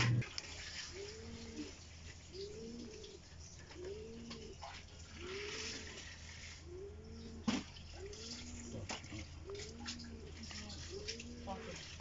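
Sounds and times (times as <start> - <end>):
steady low hum: 0.0 - 0.6
bird cooing: 0.8 - 6.0, 6.6 - 11.8.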